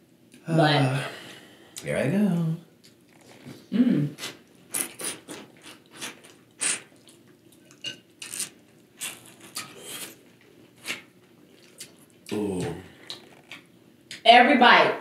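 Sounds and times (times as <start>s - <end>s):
wet chewing and lip-smacking: 4.2s - 12.4s.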